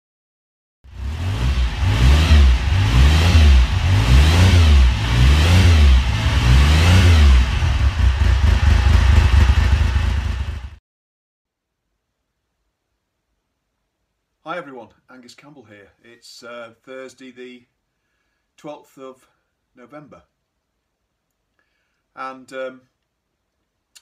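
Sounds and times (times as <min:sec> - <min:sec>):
motorcycle engine revving: 0:00.9 - 0:10.8.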